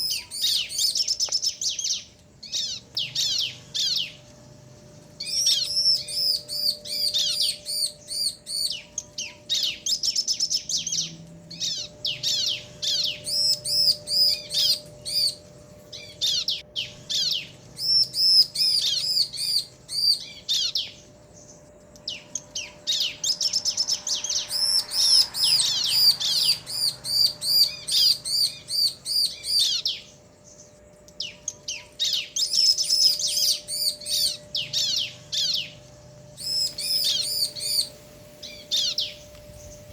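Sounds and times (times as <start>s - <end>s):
birds calling high chirps: 0.0s - 39.9s.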